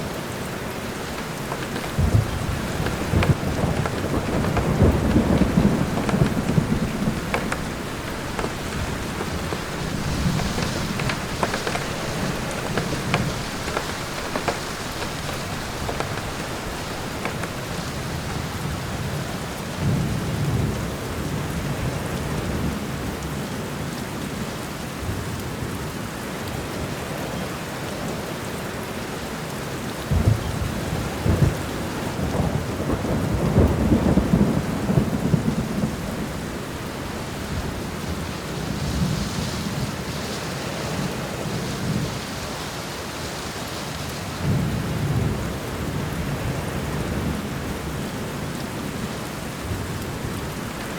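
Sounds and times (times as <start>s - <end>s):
thunder rumbling: 0.0s - 21.6s, 30.1s - 42.3s
steady rain falling: 0.0s - 50.9s.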